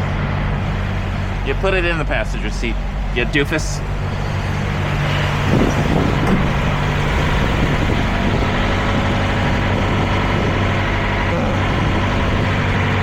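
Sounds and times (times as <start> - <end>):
truck diesel engine idling: 0.0 - 13.0.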